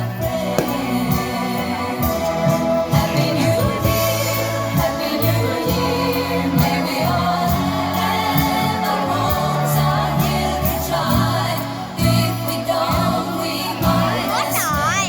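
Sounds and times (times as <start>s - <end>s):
person singing: 13.8s - 15.0s.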